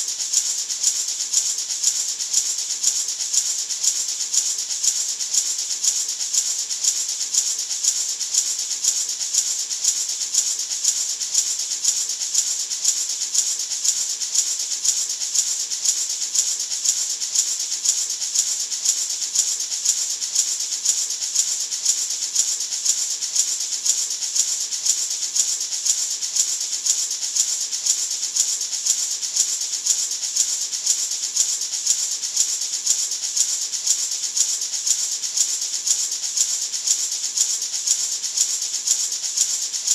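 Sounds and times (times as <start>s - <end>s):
gourd maraca rattling: 0.0s - 39.9s.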